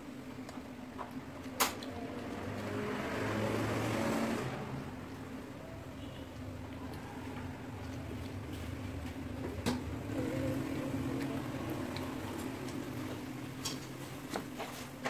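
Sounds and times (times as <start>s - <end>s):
person chewing: 6.7s - 9.1s, 10.0s - 13.3s.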